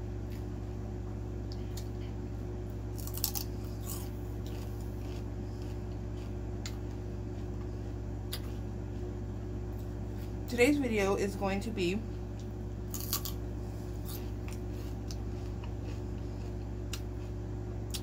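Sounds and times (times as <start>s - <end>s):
steady low hum: 0.0s - 18.0s
celery crunching: 2.8s - 9.1s, 12.4s - 18.0s.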